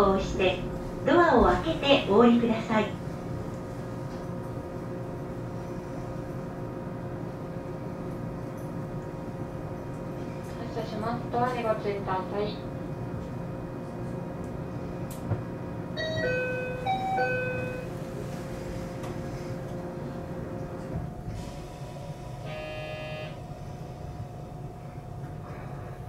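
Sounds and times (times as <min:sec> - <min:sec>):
train equipment humming: 0:00.0 - 0:26.0
short buzzing tone: 0:22.4 - 0:23.4.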